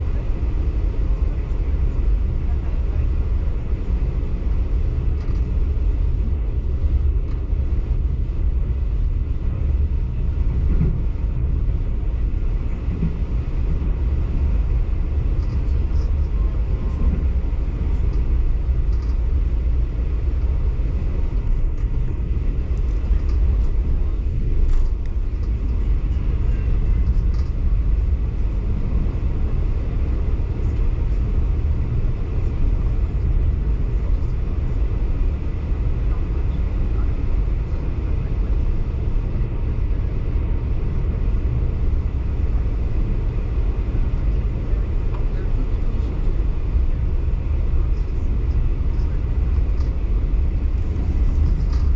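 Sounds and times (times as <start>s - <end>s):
train running with low rumble: 0.0s - 51.9s.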